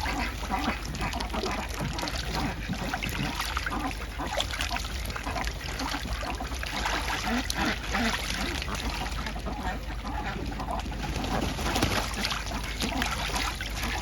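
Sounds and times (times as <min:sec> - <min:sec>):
water splashing and dribbling: 0:00.0 - 0:14.0.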